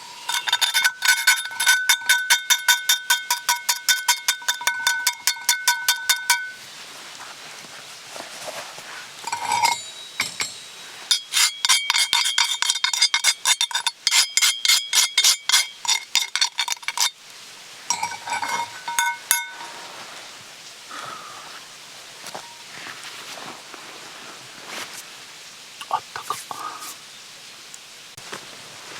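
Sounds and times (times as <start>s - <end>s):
metal cookware clinking: 0.1s - 6.6s, 9.2s - 17.2s, 17.9s - 19.8s.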